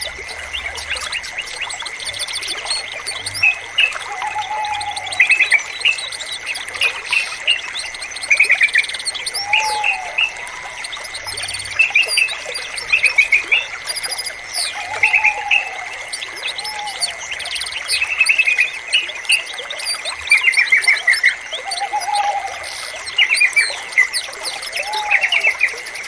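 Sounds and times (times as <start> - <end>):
bulbul song: 0.0 - 26.0.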